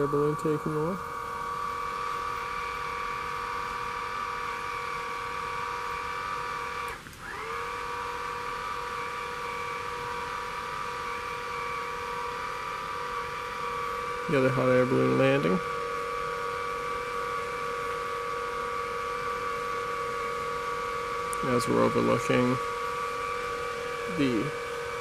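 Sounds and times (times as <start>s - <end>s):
small electric motor whining: 0.0s - 25.0s.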